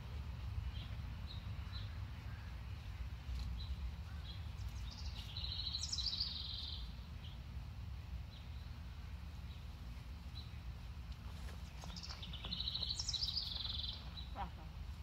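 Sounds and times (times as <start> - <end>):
steady low rumble: 0.0 - 15.0
songbird trilling: 4.1 - 6.9, 11.9 - 14.4.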